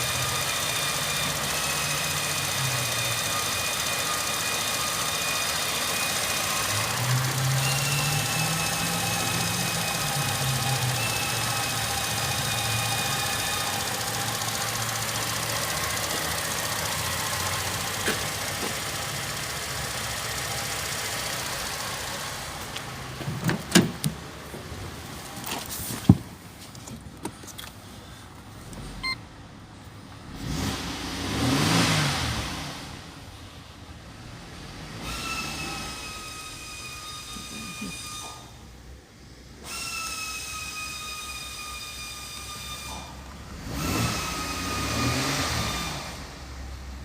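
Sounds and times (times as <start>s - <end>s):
car engine idling: 0.0s - 30.4s
sharp clicks and knocks: 23.2s - 24.7s.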